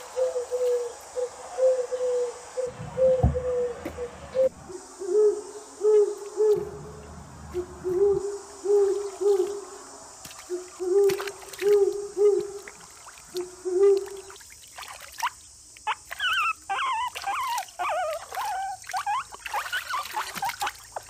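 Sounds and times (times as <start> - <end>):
bird hooting: 0.0 - 9.8, 10.5 - 12.7, 13.4 - 14.3
water splashes: 9.0 - 21.0.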